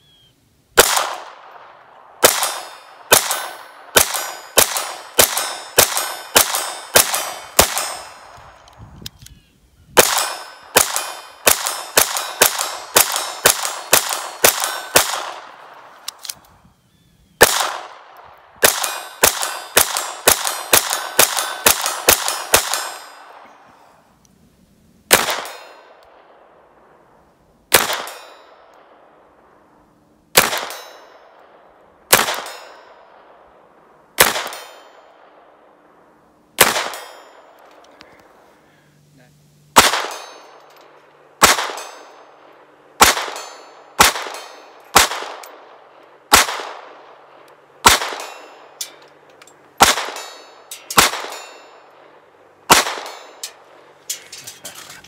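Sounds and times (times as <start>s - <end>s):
pistol shots with short echo: 0.8s - 8.4s, 10.0s - 15.9s, 17.4s - 23.5s, 25.1s - 26.5s, 27.7s - 29.0s, 34.2s - 35.5s, 36.6s - 37.6s, 39.8s - 40.6s, 41.4s - 48.9s, 49.8s - 52.0s, 52.7s - 53.6s.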